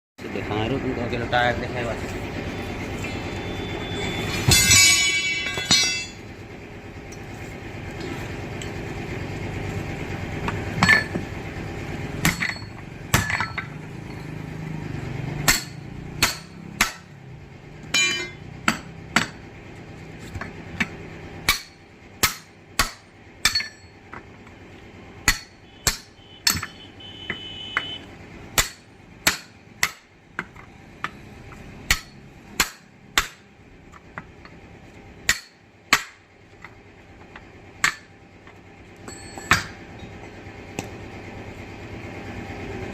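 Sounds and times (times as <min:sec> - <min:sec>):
low steady hum: 0:00.2 - 0:42.9
hammer striking tyre rim: 0:04.2 - 0:06.2, 0:10.4 - 0:11.3, 0:12.2 - 0:14.2, 0:15.4 - 0:17.2, 0:17.9 - 0:19.5, 0:20.3 - 0:24.2, 0:25.2 - 0:34.6, 0:35.2 - 0:39.8.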